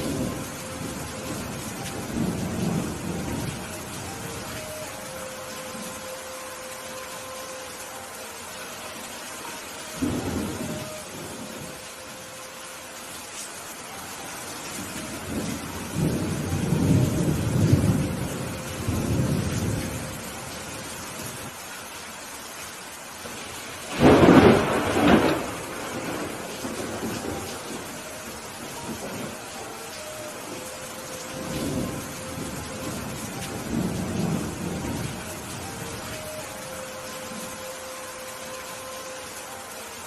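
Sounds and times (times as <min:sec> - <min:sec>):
thunder rumbling: 0:00.0 - 0:06.1, 0:09.9 - 0:12.0, 0:14.7 - 0:21.5, 0:23.2 - 0:36.6
steady rainfall: 0:00.0 - 0:40.0.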